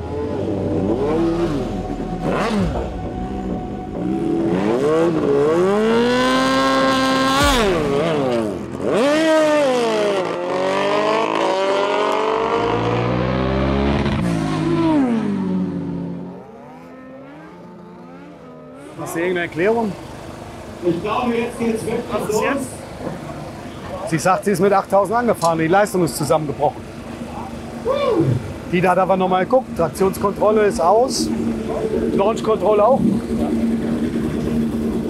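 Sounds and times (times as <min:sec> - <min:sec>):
motorcycle accelerating away: 0:00.0 - 0:20.4, 0:31.1 - 0:35.0
motorcycle engine revving: 0:00.0 - 0:20.9, 0:30.8 - 0:35.0.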